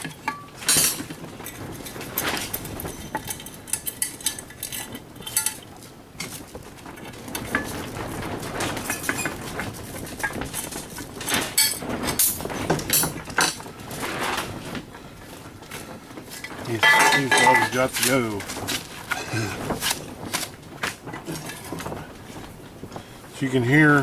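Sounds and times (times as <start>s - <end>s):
metal parts and tools clinking: 0.0s - 6.4s, 10.2s - 13.6s, 16.4s - 18.4s.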